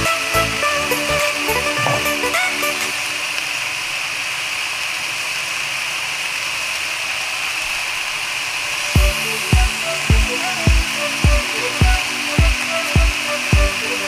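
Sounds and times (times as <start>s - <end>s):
music with deep beat: 0.0s - 2.4s, 9.0s - 13.8s.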